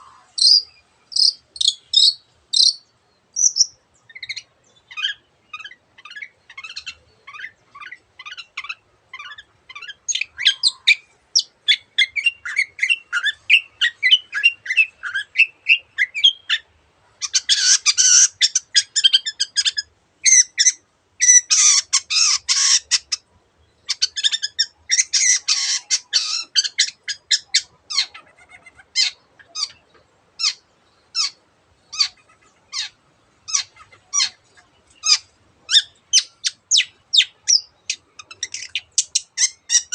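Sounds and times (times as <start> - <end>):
sharp bird notes: 0.0 - 4.4
bird chattering song: 0.0 - 39.9
harsh rasping bird calls: 0.0 - 39.9.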